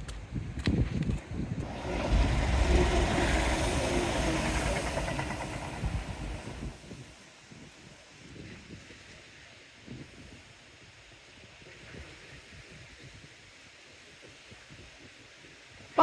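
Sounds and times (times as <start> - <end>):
train passing rumble: 1.0 - 7.5.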